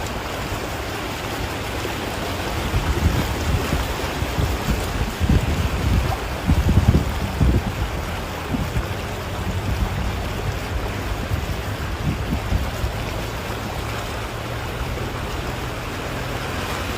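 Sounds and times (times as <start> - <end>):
heavy rain falling: 0.0 - 16.9
wind buffeting microphone: 0.0 - 16.9.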